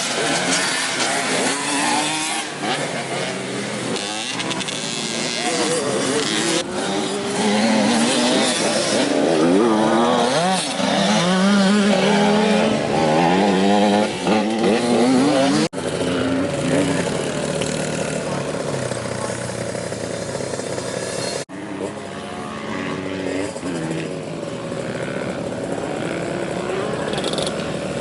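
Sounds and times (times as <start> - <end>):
motorbike engine revving: 0.0 - 28.0.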